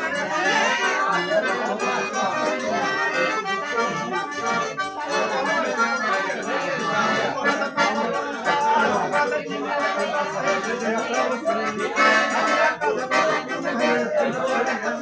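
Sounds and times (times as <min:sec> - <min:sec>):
accordion folk music: 0:00.0 - 0:15.0
percussion beat: 0:00.0 - 0:15.0.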